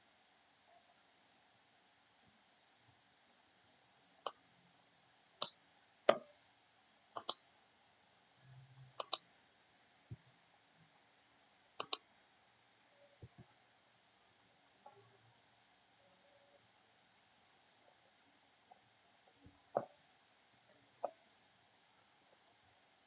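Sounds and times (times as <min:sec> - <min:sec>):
computer mouse clicking: 0:05.4 - 0:06.3, 0:07.2 - 0:07.4, 0:09.0 - 0:09.2, 0:11.8 - 0:12.0.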